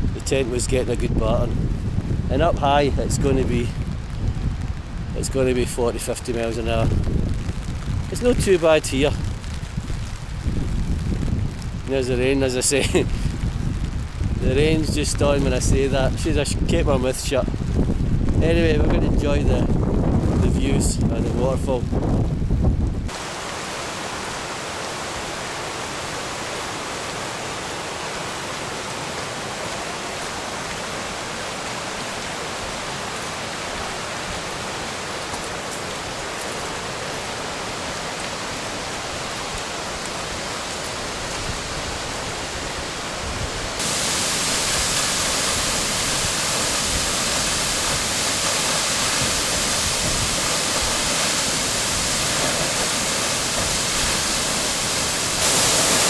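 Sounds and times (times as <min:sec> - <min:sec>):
waterfall rushing: 0:23.1 - 0:56.0.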